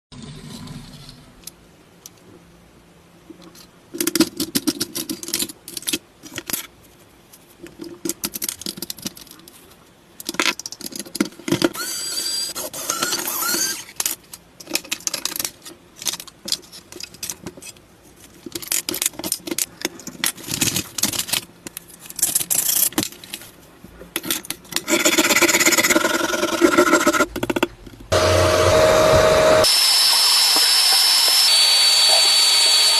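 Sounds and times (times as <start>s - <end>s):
toy car parts clicking and rattling: 3.5s - 6.7s, 7.7s - 9.6s, 10.2s - 23.5s.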